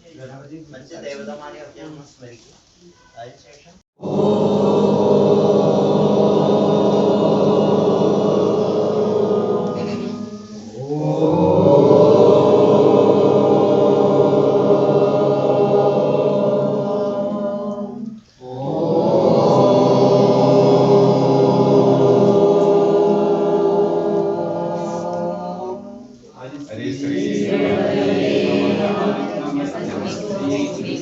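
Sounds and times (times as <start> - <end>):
group chanting in unison: 4.0 - 31.0.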